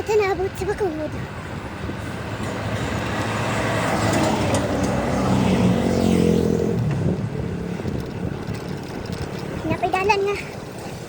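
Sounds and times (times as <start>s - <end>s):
road noise: 0.0s - 11.0s
vehicle engine passing by: 1.5s - 9.6s.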